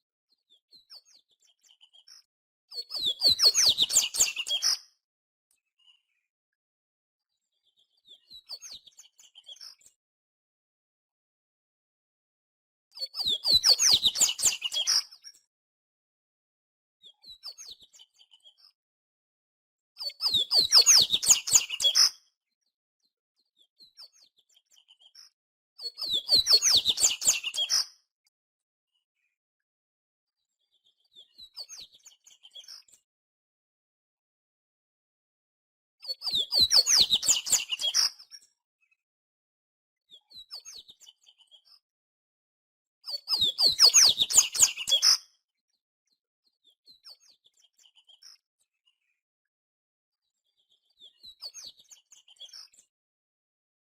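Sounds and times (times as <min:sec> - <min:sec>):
bird singing rapid song: 0:00.5 - 0:04.9, 0:07.6 - 0:10.0, 0:12.9 - 0:15.4, 0:20.0 - 0:22.2, 0:23.5 - 0:28.0, 0:30.6 - 0:33.0, 0:36.0 - 0:38.5, 0:43.0 - 0:45.3.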